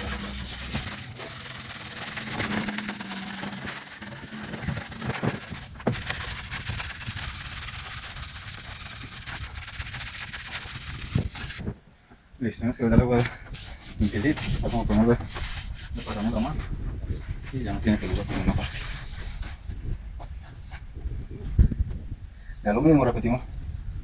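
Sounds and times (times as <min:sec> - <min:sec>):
sponge scrubbing bamboo pole: 0:00.0 - 0:11.7, 0:13.2 - 0:19.9.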